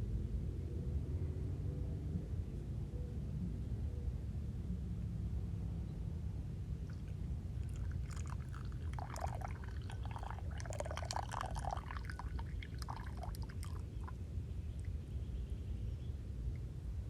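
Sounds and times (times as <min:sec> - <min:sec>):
tea being poured: 0:06.9 - 0:14.2.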